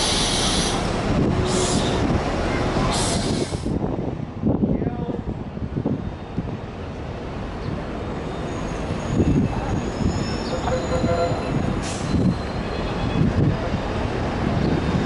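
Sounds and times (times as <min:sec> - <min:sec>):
low rumble of wheels and engine: 0:00.0 - 0:15.0
train wheels squealing: 0:08.2 - 0:13.3.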